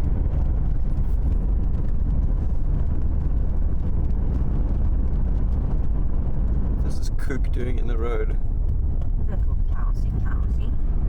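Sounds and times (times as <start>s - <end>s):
vehicle driving on road: 0.0s - 11.0s.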